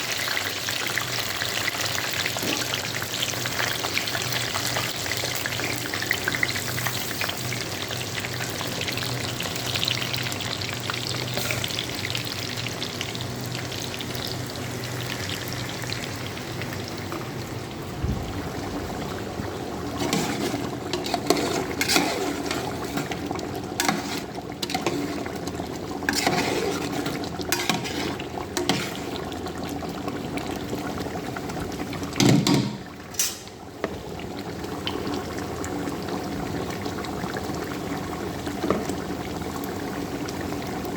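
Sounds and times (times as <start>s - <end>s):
food sizzling in oil: 0.0s - 17.4s, 19.8s - 40.6s
utensil clatter: 20.0s - 23.2s
utensil scraping a pot: 20.0s - 29.4s.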